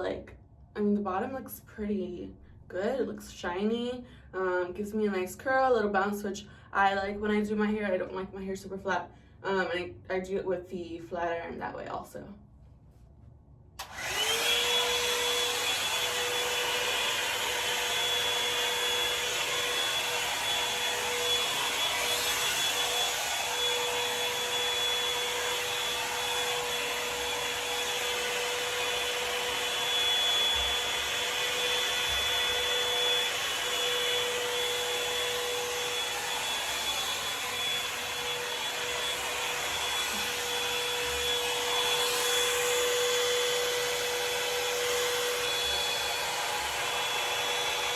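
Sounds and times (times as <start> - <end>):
hot air brush blowing and whining: 13.8 - 47.9.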